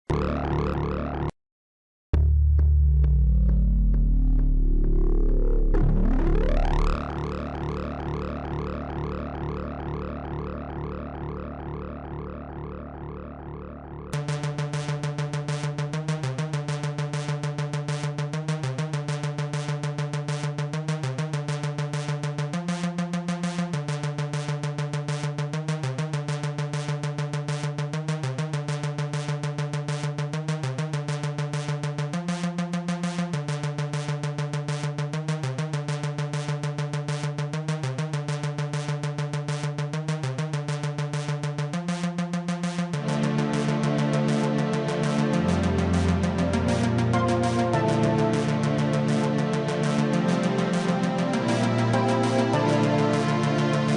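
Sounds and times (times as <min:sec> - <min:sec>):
electronic synthesizer music: 0:00.1 - 0:01.4, 0:02.2 - 0:18.2, 0:42.9 - 0:53.9.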